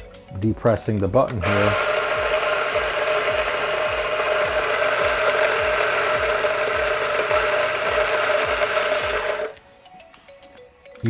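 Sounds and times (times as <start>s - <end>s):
coffee grinder whirring: 1.4s - 9.6s.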